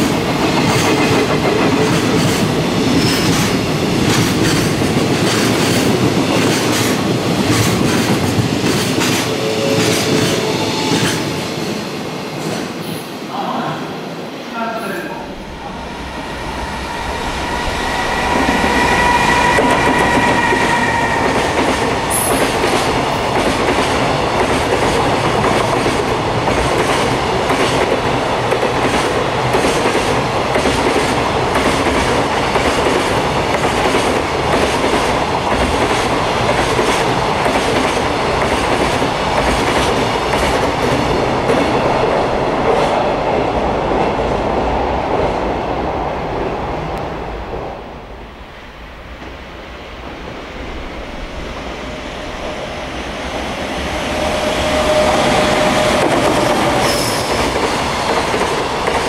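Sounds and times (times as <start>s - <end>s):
freight train wheels rushing: 0.0s - 13.3s, 15.2s - 59.0s
steady high tone: 14.6s - 22.7s, 51.6s - 58.2s.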